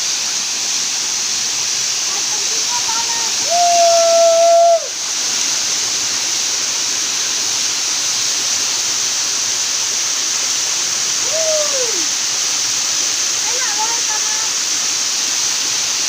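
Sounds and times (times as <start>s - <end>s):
waterfall rushing: 0.0s - 16.0s
held vocal call: 11.2s - 12.1s.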